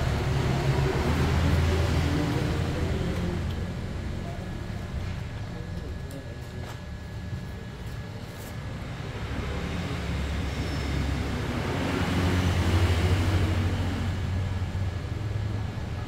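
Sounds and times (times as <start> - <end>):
vehicle engine rumble passing: 0.0 - 5.5, 9.0 - 16.0.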